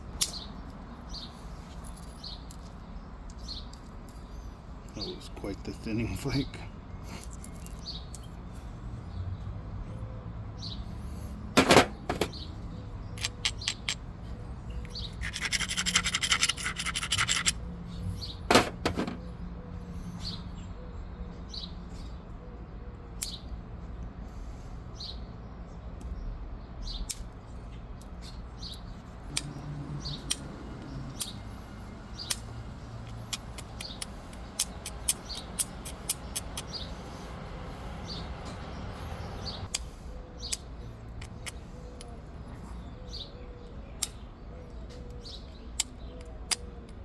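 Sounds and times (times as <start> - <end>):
light ticks and taps on stone: 13.2 - 14.0, 32.3 - 36.7
stone scraping clicks: 13.2 - 14.0, 14.8 - 17.6, 18.5 - 19.2, 30.2 - 30.5, 32.2 - 36.9, 40.5 - 42.2, 45.8 - 47.0.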